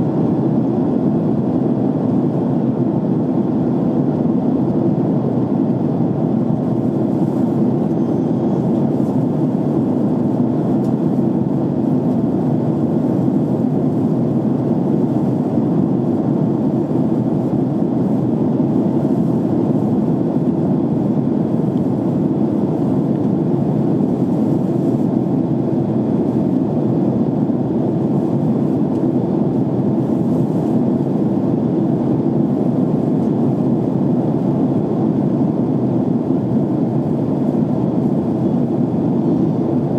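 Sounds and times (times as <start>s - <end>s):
jet engine and airflow rush: 0.0s - 39.9s.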